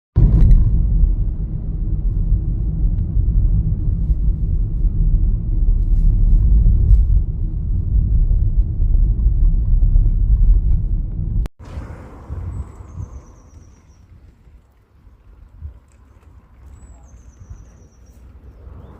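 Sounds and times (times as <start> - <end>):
wind buffeting microphone: 0.2 - 18.9.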